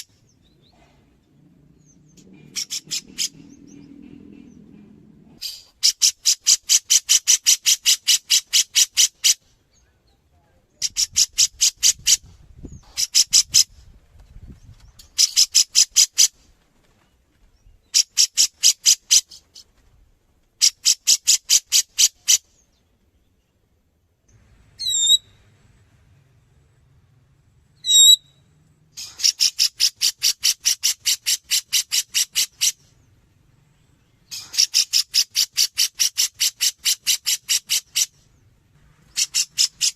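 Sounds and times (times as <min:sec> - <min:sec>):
bird calling high rapid notes: 0:24.8 - 0:25.4, 0:27.8 - 0:28.4.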